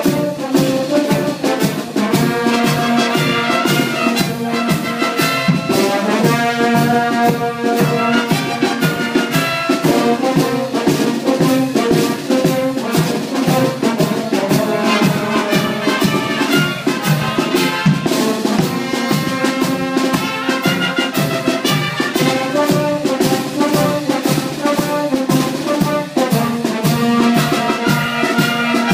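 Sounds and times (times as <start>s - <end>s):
brass band music: 0.0s - 28.9s.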